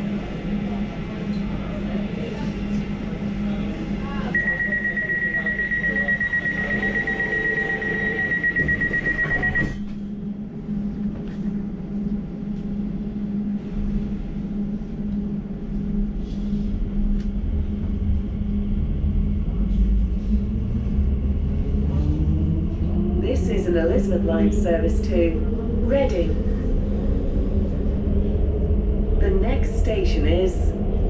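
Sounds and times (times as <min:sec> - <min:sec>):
train rumbling: 0:00.0 - 0:31.0
door warning beep: 0:04.4 - 0:09.9.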